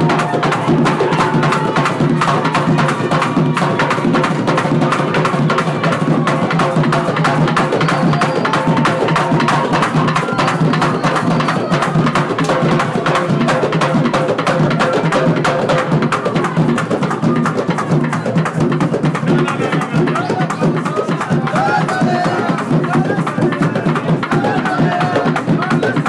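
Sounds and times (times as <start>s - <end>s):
background music with percussion: 0.0s - 26.0s.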